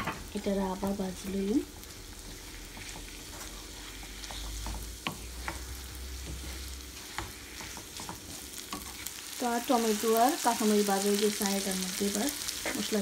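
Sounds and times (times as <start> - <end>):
fish sizzling in hot oil: 0.2 - 13.0
spatula scraping pan: 1.8 - 9.4.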